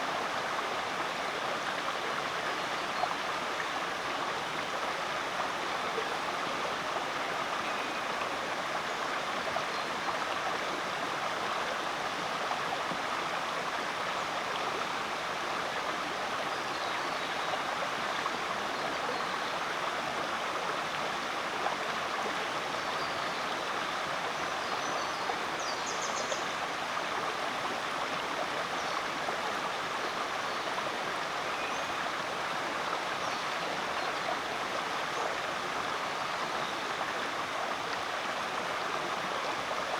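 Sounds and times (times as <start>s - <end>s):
creek flowing over rocks: 0.0s - 39.9s.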